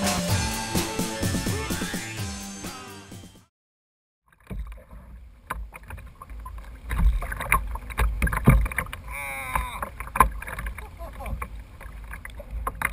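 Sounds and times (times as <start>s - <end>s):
wind and water rumble: 4.4s - 12.9s.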